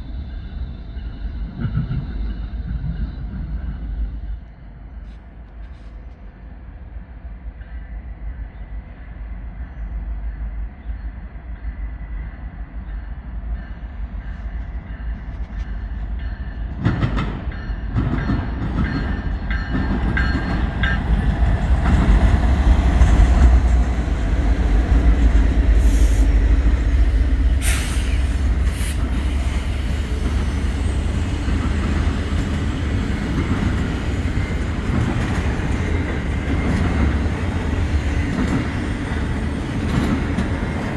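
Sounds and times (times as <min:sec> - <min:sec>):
train wheels squealing: 0:00.0 - 0:06.3, 0:17.5 - 0:40.9
railcars clattering: 0:00.0 - 0:06.7, 0:10.4 - 0:40.9
diesel locomotive rumble: 0:14.4 - 0:40.9.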